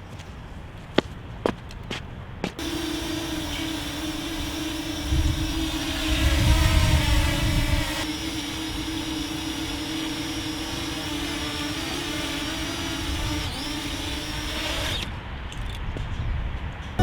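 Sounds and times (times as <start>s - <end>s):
drone propellers humming: 2.4s - 15.2s
high motor whine: 2.5s - 15.2s.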